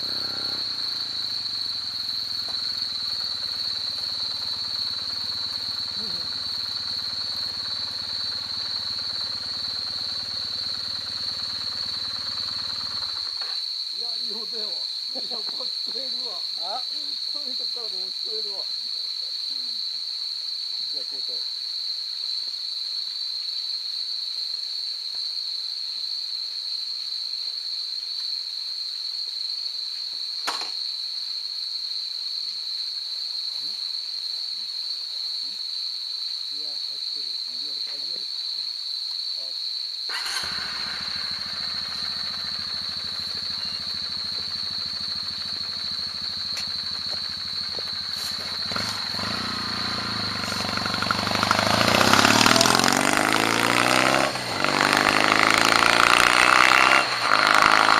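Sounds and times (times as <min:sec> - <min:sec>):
motorcycle idling: 0:00.0 - 0:13.5, 0:40.1 - 0:53.4
insects droning: 0:00.0 - 0:57.9.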